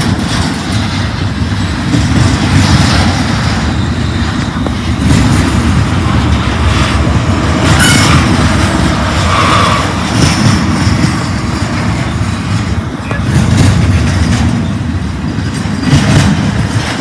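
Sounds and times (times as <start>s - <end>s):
freight train rumbling on rails: 0.0s - 17.0s
train wheel squeal: 7.6s - 16.3s.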